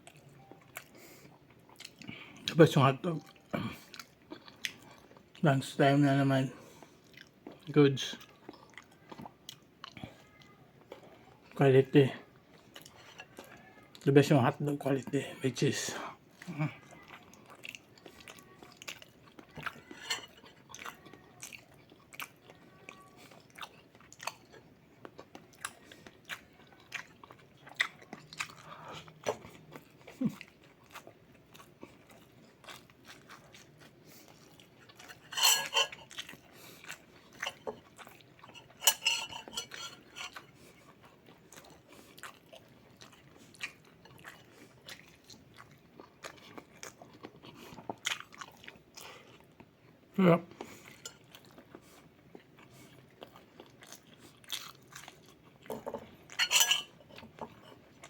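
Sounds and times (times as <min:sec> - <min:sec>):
chewing and crunching: 0:00.0 - 0:58.0
cutlery clinking on dishes: 0:19.6 - 0:20.8, 0:35.0 - 0:36.3, 0:37.4 - 0:40.4, 0:55.7 - 0:57.8.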